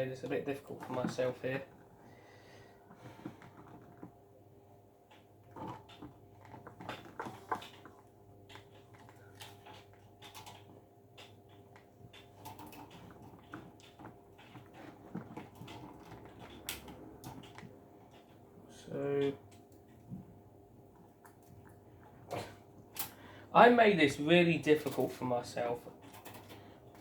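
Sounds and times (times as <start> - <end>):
plastic parts clicking and rattling: 5.1 - 18.4, 25.9 - 27.0.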